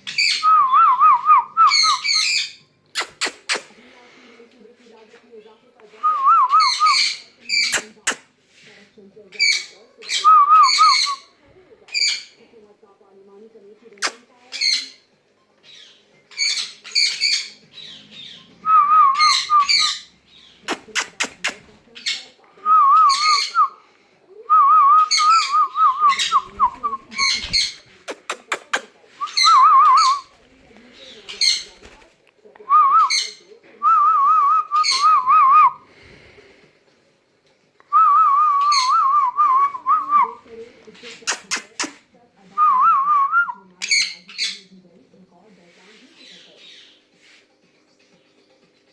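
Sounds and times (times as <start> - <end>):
parrot chirping: 0.0 - 0.6, 1.6 - 3.7, 6.5 - 8.2, 9.3 - 11.3, 14.0 - 22.3, 23.0 - 23.7, 25.0 - 30.3, 31.0 - 31.8, 34.8 - 35.4, 43.8 - 44.7.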